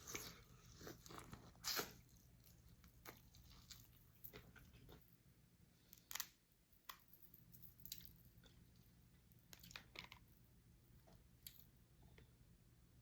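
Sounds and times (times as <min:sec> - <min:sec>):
faint chewing: 0:00.0 - 0:05.2.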